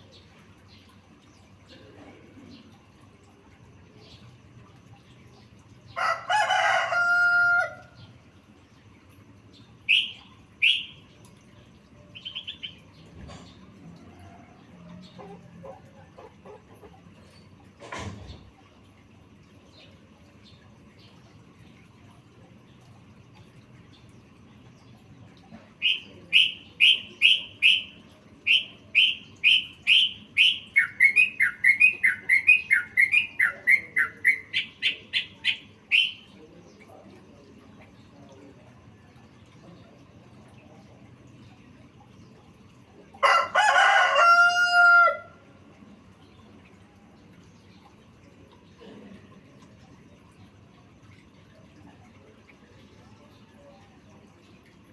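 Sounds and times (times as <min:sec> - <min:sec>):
rooster crow: 0:06.0 - 0:08.0, 0:43.2 - 0:45.4
bulbul calling: 0:09.9 - 0:11.0, 0:25.8 - 0:36.3.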